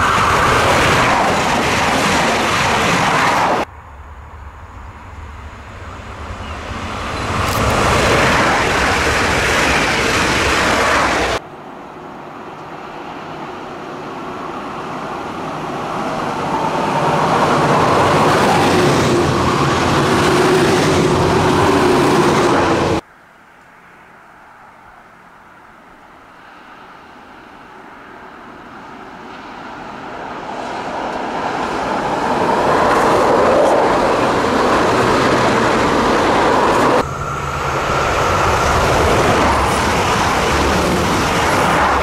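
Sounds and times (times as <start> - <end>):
wheels on rail: 0.0 - 11.4, 28.0 - 42.0
diesel train passing at speed: 0.0 - 23.0, 23.8 - 42.0.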